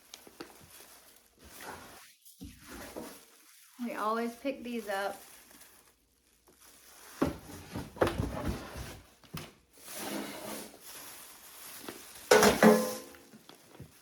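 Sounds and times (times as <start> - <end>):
soft rustling: 0.0 - 12.4, 13.2 - 14.0
objects knocking and clunking: 7.2 - 9.5, 12.3 - 14.0.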